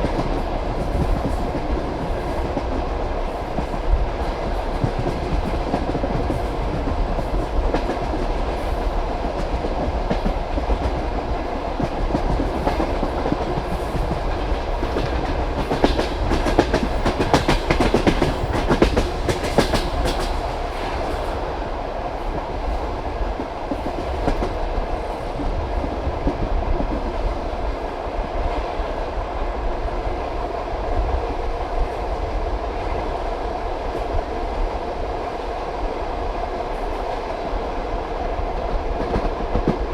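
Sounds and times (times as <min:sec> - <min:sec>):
train wheels clattering over rail joints: 0:03.4 - 0:21.4.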